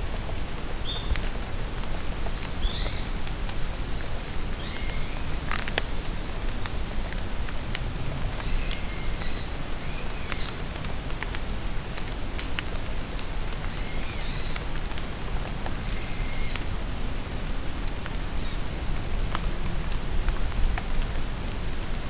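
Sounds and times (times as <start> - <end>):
rain falling in forest: 0.0 - 22.0
high songbird calls: 2.2 - 6.4.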